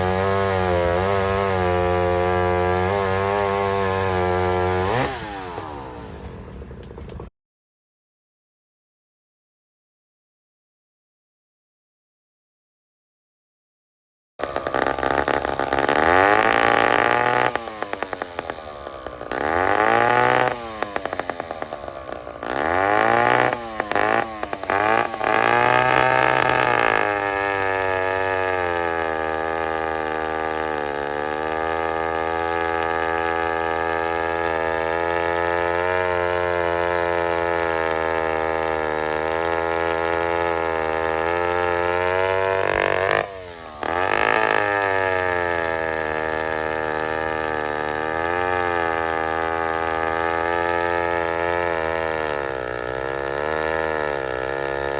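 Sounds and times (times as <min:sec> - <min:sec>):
chainsaw engine revving: 0:00.0 - 0:07.3, 0:14.4 - 0:54.9.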